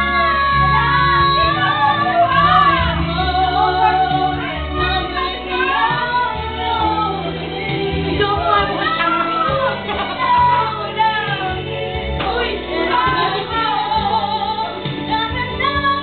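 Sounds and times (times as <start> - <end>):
musical accompaniment: 0.0 - 16.0
other voices singing along: 0.0 - 16.0
woman singing a pop ballad: 0.0 - 16.0.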